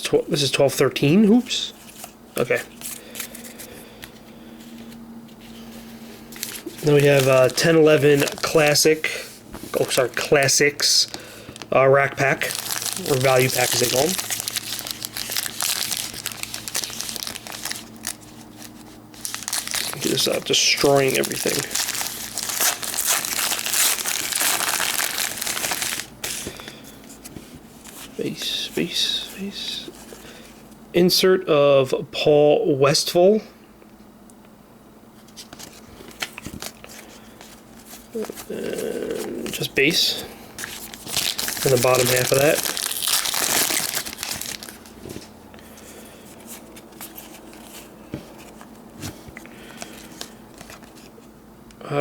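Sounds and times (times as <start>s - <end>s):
trading cards rustling: 1.7s - 30.6s, 35.3s - 51.1s
wrapper crinkling: 6.3s - 28.6s, 35.4s - 45.3s, 46.2s - 51.1s.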